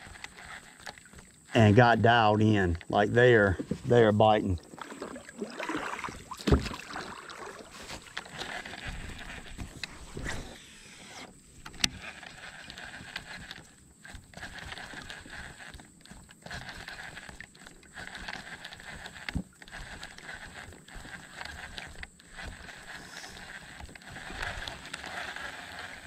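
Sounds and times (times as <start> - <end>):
gear knocking and clicking in kayak: 0.0 - 26.0.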